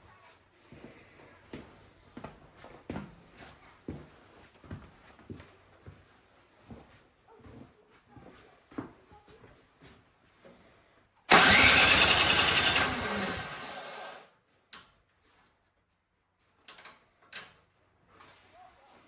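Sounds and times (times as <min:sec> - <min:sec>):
small gasoline engine running: 0:11.3 - 0:14.3.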